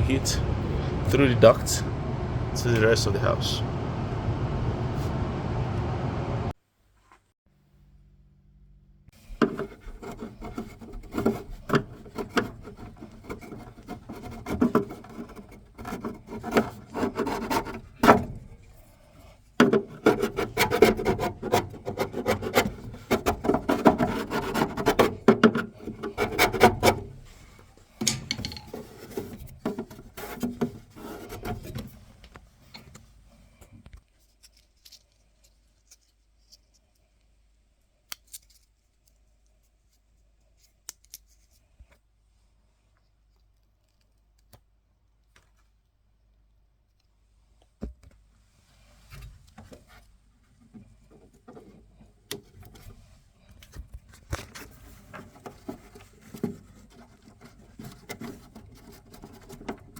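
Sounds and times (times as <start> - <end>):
rubbing and scraping: 9.2 - 37.0, 48.5 - 59.9.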